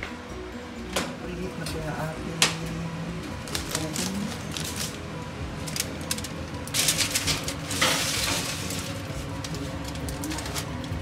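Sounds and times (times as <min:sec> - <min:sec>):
foil scraping and crinkling: 0:03.4 - 0:11.0.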